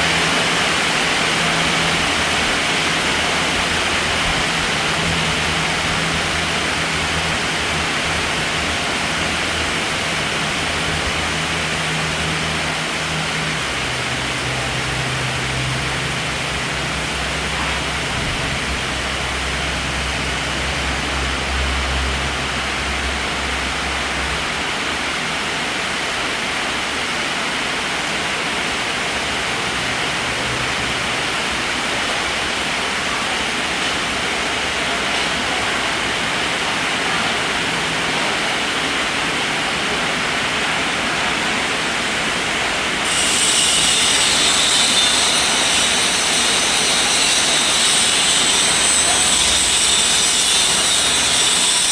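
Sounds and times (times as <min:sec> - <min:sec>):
heavy rain falling: 0:00.0 - 0:43.1.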